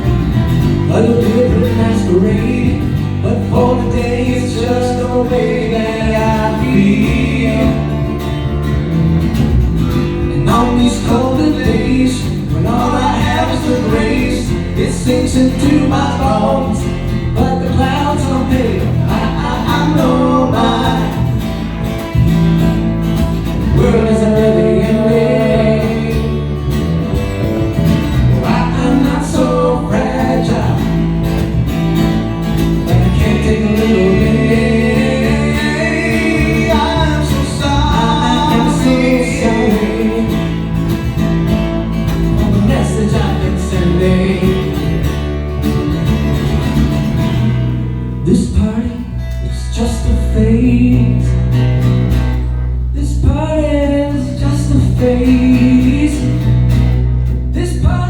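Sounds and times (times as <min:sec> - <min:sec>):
guitar: 0:00.0 - 0:58.0
steady bass: 0:00.0 - 0:58.0
person singing: 0:32.9 - 0:40.6.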